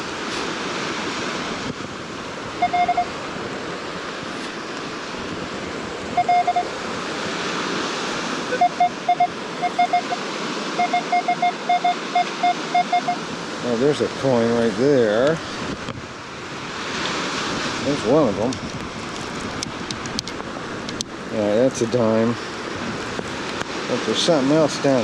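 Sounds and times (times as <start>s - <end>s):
wind noise: 0.0s - 24.1s
surf: 0.0s - 25.0s
metal detector beeps: 2.6s - 3.2s, 6.1s - 6.7s, 8.5s - 10.2s, 10.8s - 13.2s.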